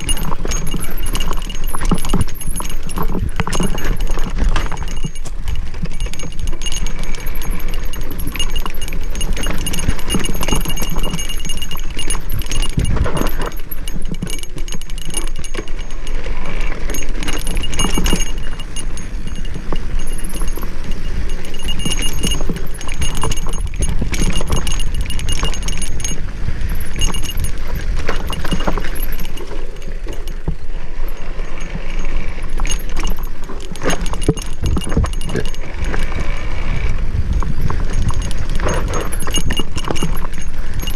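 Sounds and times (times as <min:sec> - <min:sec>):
bike rattling over bumps: 0:00.0 - 0:40.9
wind rumble on microphone: 0:00.0 - 0:40.9.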